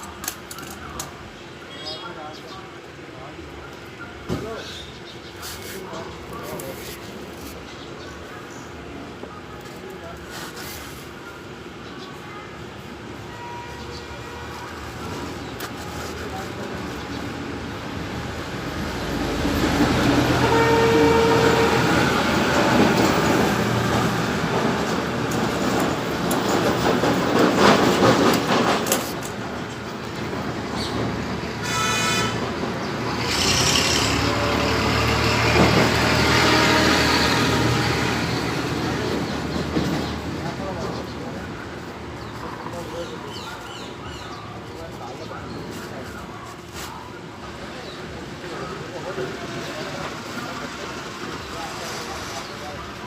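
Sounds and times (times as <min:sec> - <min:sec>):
road traffic passing: 0:00.0 - 0:53.0
vehicle horns: 0:12.2 - 0:15.3, 0:20.3 - 0:22.3, 0:31.6 - 0:32.6.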